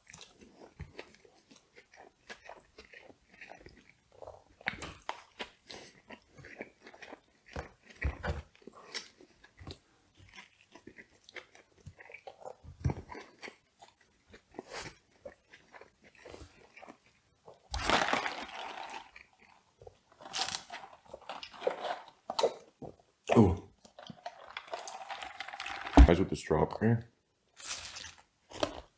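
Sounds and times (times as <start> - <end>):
person chewing and crunching food: 0.0 - 26.2, 27.5 - 28.9.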